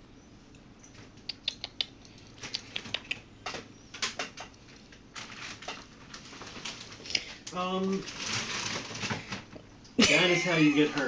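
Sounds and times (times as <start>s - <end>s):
plastic bag crinkling: 4.9s - 9.4s.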